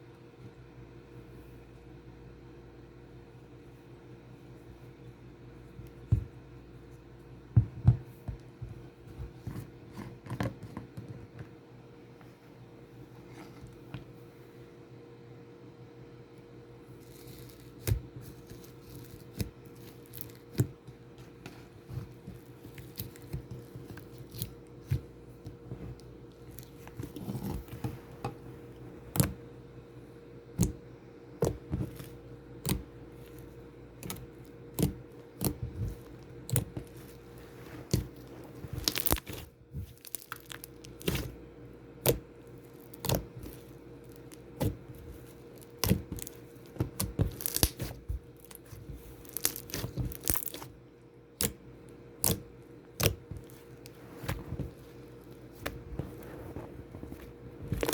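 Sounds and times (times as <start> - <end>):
steady low hum: 0.0 - 57.9
slime popping and crackling: 37.9 - 41.4, 42.0 - 50.7, 57.6 - 57.9.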